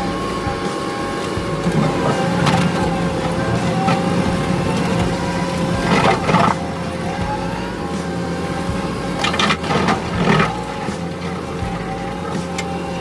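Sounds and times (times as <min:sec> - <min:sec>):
skid steer engine hum with whine: 0:00.0 - 0:13.0
brush cutter cutting brush: 0:00.2 - 0:13.0.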